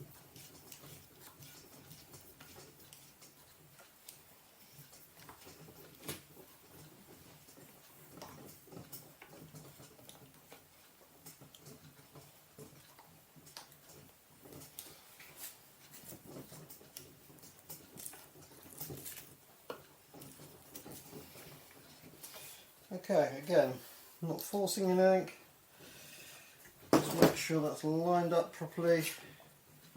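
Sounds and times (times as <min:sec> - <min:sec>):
small clicks and taps: 0:00.4 - 0:22.4.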